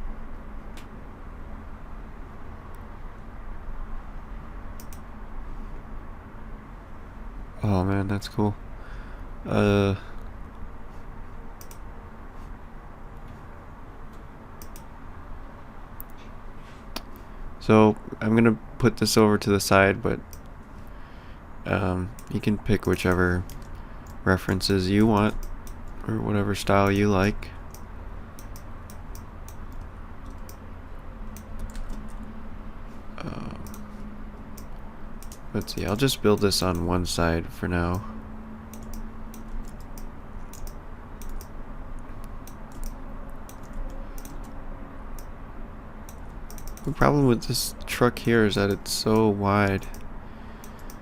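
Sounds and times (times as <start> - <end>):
low hum: 0.0 - 51.0
computer mouse clicks: 4.8 - 5.1, 11.6 - 11.8, 14.1 - 14.9, 22.2 - 24.2, 25.1 - 26.0, 27.7 - 30.6, 31.3 - 32.2, 33.6 - 33.9, 34.6 - 36.9, 38.7 - 45.3, 46.1 - 47.0, 49.2 - 51.0
keyboard keys clicking: 42.5 - 44.6, 46.1 - 47.0.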